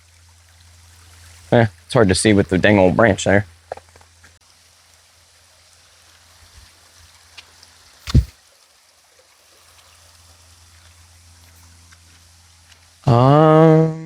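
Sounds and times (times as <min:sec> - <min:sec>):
creek water trickling: 0:00.0 - 0:13.1
small ticks: 0:07.3 - 0:08.2
loud thump: 0:08.1 - 0:08.4.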